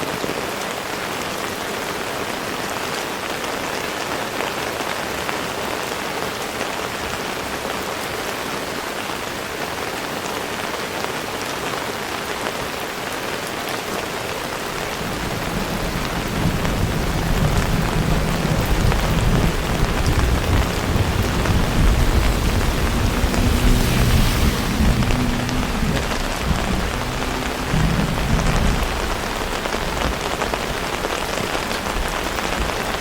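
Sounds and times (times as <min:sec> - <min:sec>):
heavy rain falling: 0:00.0 - 0:33.0
low rumble of thunder: 0:14.7 - 0:33.0.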